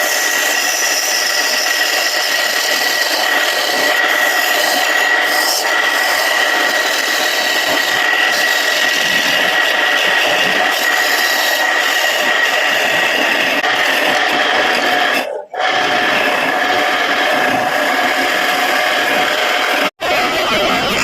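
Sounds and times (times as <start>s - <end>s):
tool scraping spinning wood: 0.0s - 21.0s
wood lathe whine: 0.0s - 21.0s.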